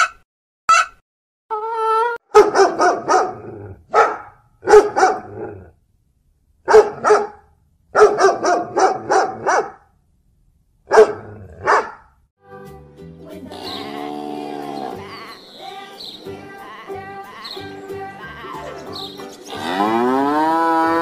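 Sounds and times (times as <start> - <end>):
dog barking: 2.3 - 5.5, 6.7 - 9.9, 10.9 - 12.2.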